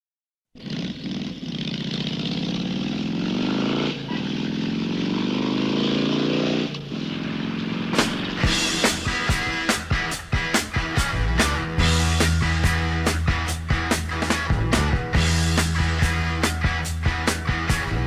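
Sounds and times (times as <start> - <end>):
motorcycle engine accelerating: 0.6 - 18.0
rock music drum hits: 7.9 - 18.0.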